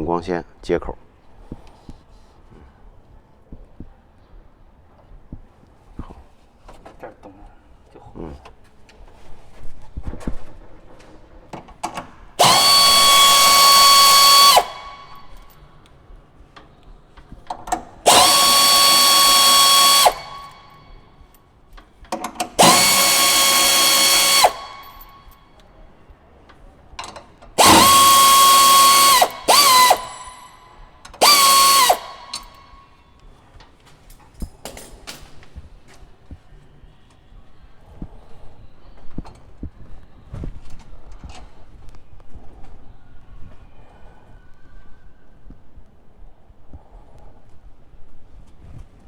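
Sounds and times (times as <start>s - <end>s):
cordless drill running: 12.4s - 15.4s, 18.1s - 20.8s, 22.6s - 25.3s, 27.6s - 30.6s, 31.2s - 32.7s.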